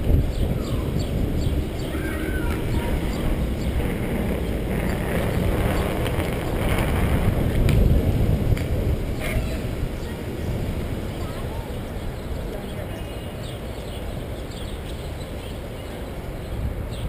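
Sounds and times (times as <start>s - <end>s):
wind buffeting microphone: 0.0s - 17.0s
tyre and bike rattle: 1.4s - 9.7s.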